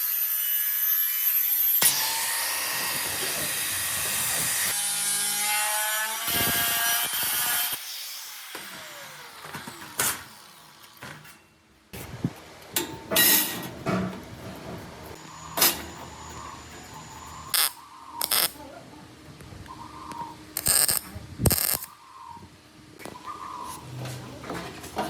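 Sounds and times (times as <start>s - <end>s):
power tools cutting and grinding: 0.0s - 11.4s.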